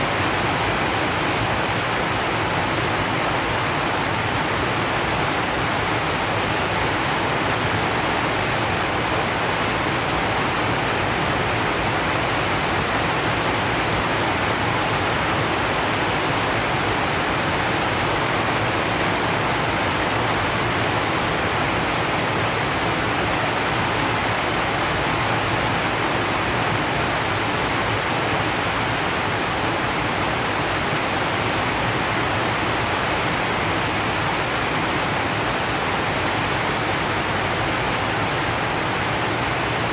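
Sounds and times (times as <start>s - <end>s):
heavy rain on a metal roof: 0.0s - 39.9s.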